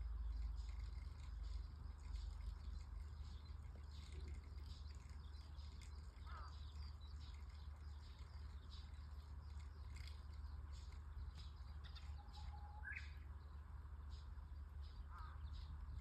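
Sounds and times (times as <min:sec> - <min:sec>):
bird chirps and tweets: 0:00.0 - 0:16.0
steady low rumble: 0:00.0 - 0:16.0
warbling bird call: 0:03.9 - 0:08.9.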